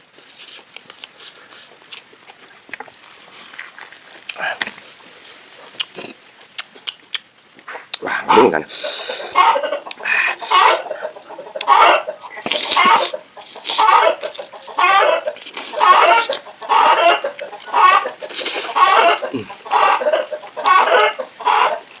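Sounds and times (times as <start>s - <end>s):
chicken calling: 7.7s - 22.0s.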